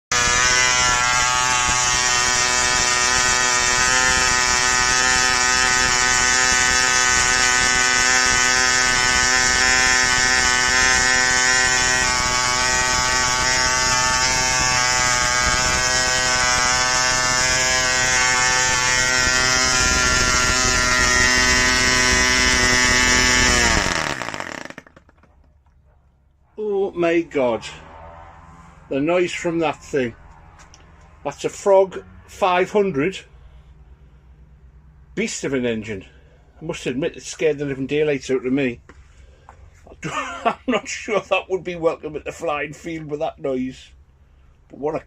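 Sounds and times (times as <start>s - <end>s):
model engine running: 0.1s - 25.4s.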